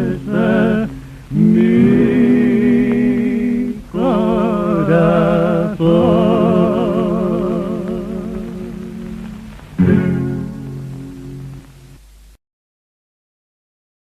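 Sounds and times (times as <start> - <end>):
man singing with vibrato: 0.0 - 11.0.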